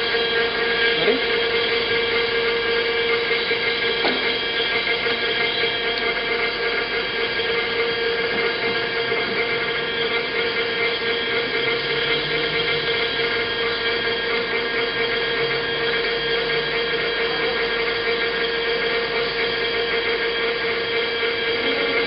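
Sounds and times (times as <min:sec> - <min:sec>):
surface grinder humming: 0:00.0 - 0:22.0.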